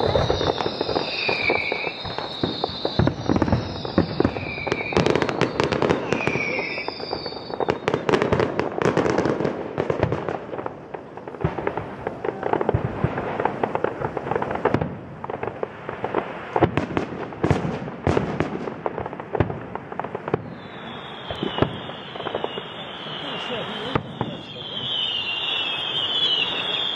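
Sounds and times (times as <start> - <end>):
falling firework whistle: 0.0 - 9.5, 11.4 - 18.6, 20.2 - 26.9
fireworks bangs and crackles: 0.0 - 26.9.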